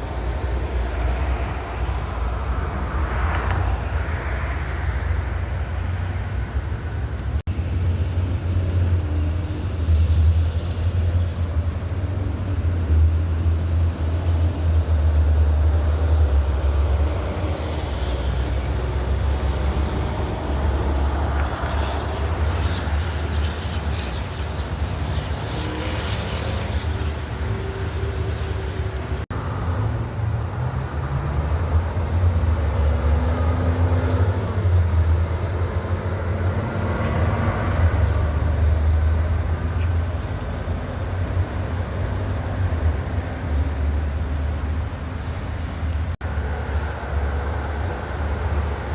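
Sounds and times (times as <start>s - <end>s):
heavy trucks passing: 0.0s - 48.9s.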